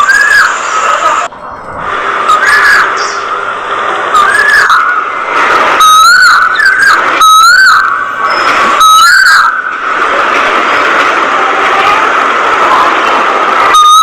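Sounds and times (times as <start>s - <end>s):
bird whistling: 0.0s - 0.6s, 2.3s - 3.3s, 4.2s - 5.1s, 5.8s - 9.8s.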